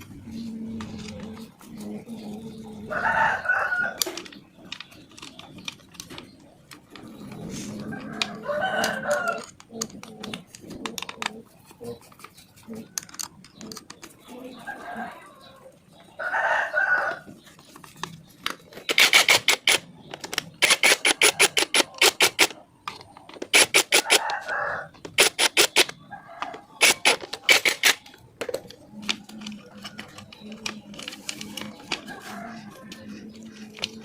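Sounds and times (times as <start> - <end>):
rooster crowing: 2.9 - 4.0, 7.9 - 9.5, 16.2 - 17.3, 24.0 - 25.0
rapid sharp clicks: 18.0 - 26.0, 26.8 - 32.3.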